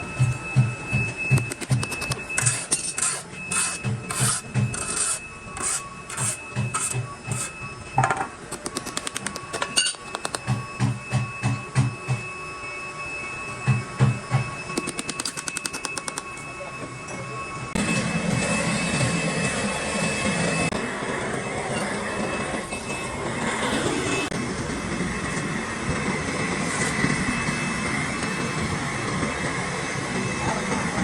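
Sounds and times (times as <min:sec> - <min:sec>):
thin steady whine: 0:00.0 - 0:31.0
machinery knocking and clattering: 0:06.6 - 0:12.2.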